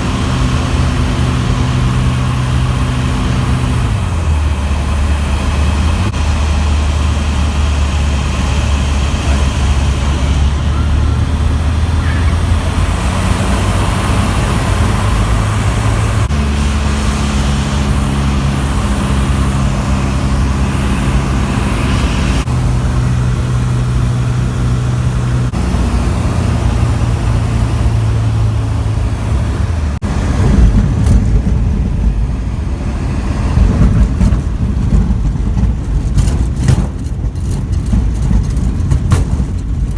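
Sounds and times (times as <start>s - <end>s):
light aircraft engine from cockpit: 0.0s - 39.9s.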